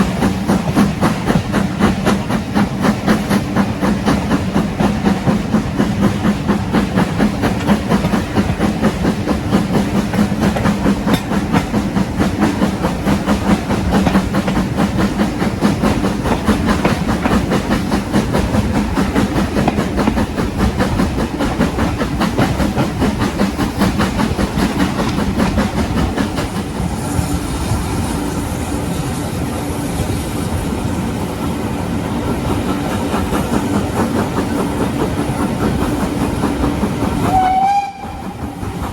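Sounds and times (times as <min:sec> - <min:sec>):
train low hum: 0:00.0 - 0:38.9
train wheels clattering: 0:00.0 - 0:38.9.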